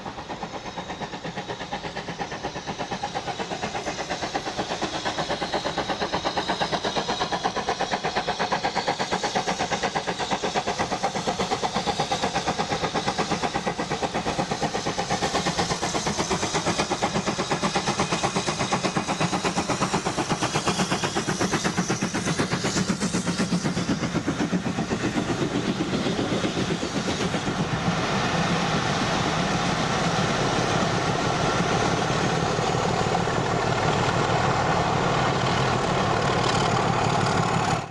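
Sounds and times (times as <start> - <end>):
steam locomotive working: 0.0 - 37.9
diesel engine running: 29.0 - 37.9.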